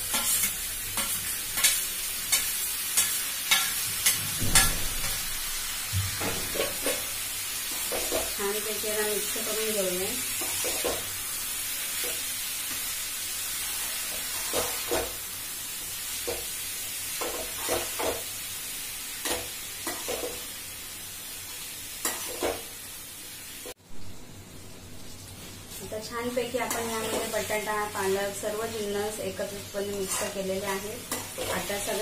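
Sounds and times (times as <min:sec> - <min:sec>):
metal spoon scraping a pan: 0:00.0 - 0:05.3, 0:29.9 - 0:32.0
vegetables sizzling in oil: 0:00.0 - 0:32.0.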